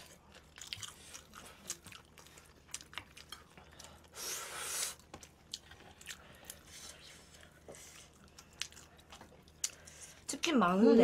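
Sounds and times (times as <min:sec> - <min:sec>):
wet chewing clicks and smacks: 0:00.0 - 0:04.2, 0:05.0 - 0:10.0.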